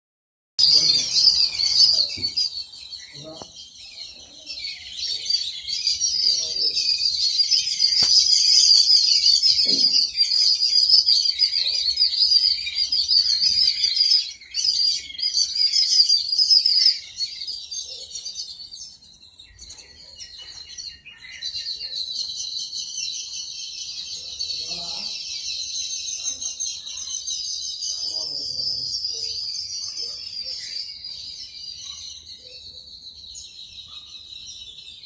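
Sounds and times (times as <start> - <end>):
small birds chirping: 0.6 - 35.0.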